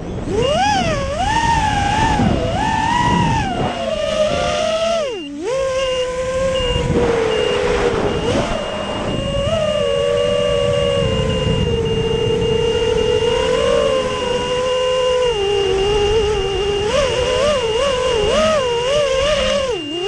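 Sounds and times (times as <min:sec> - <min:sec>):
quadcopter motors whining: 0:00.0 - 0:20.0
thin high tone: 0:00.0 - 0:20.0
wind rushing: 0:06.5 - 0:14.6.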